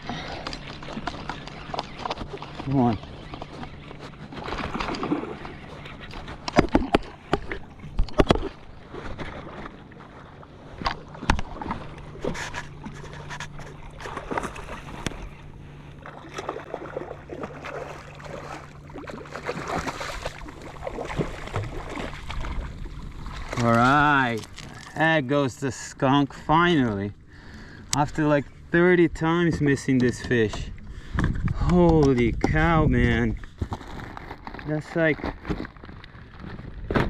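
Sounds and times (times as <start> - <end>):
water splashing: 0.0 - 25.1
knocks and clicks on a kayak: 3.2 - 9.4, 29.4 - 34.6.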